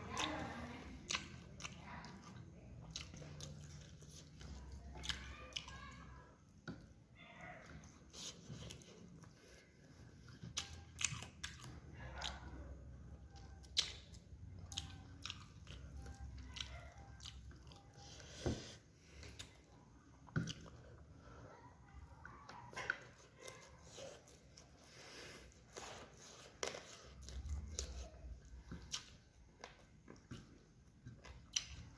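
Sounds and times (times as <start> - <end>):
person chewing food: 0.0 - 31.9.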